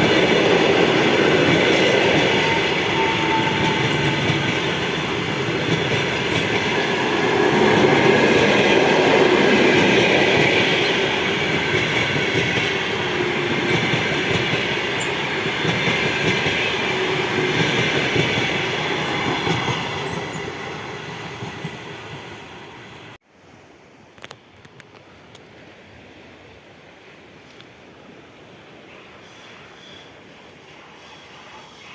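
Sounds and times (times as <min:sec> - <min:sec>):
train wheels on rails: 0:00.0 - 0:23.2.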